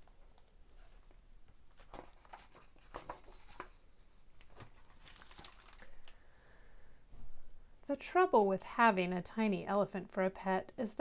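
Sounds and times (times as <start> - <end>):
book pages turning: 0.2 - 6.2.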